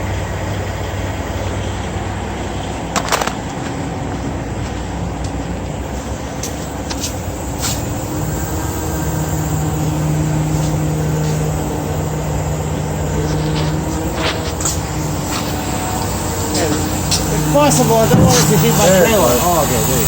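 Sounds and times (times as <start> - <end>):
heavy diesel engine running: 0.0 - 20.0
sharp clicks: 3.0 - 3.7.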